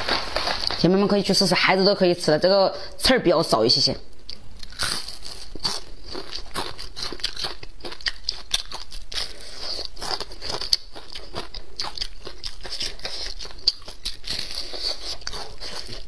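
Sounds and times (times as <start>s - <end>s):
chewing crispy fried food: 4.1s - 16.0s.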